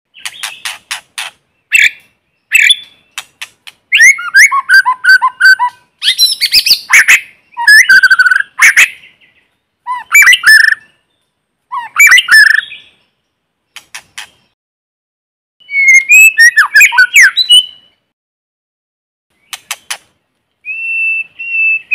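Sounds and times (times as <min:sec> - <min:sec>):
songbird whistling and chipping: 0:00.1 - 0:13.0, 0:15.6 - 0:18.0, 0:20.6 - 0:21.9.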